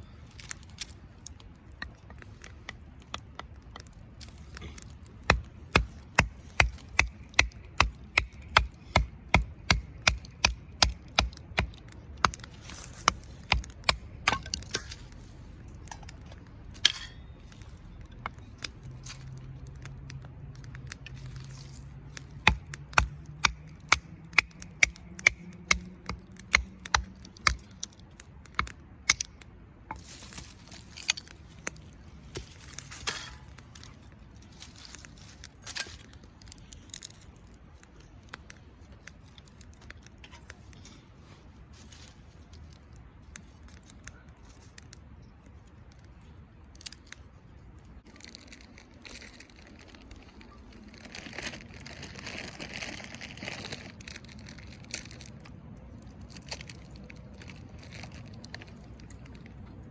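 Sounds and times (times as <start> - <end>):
blade chopping firewood: 1.7 - 15.2, 15.8 - 19.9, 20.5 - 34.0.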